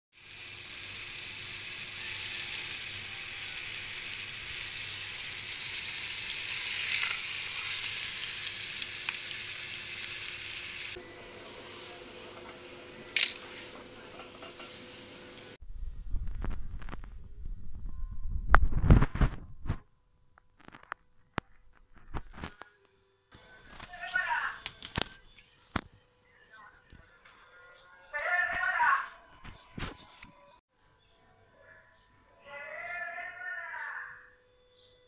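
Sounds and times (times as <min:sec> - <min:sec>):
food sizzling in hot oil: 0:00.1 - 0:12.2.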